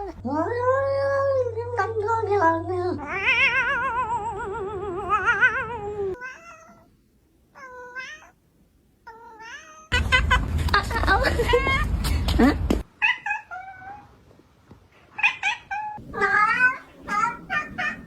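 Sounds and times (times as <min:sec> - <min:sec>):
cat meowing: 0:03.0 - 0:06.9, 0:07.6 - 0:08.4, 0:09.1 - 0:10.2, 0:13.0 - 0:14.1, 0:15.2 - 0:18.0
cat yowling: 0:03.0 - 0:06.9, 0:07.6 - 0:08.4, 0:09.1 - 0:10.0, 0:13.0 - 0:14.1, 0:15.2 - 0:18.0.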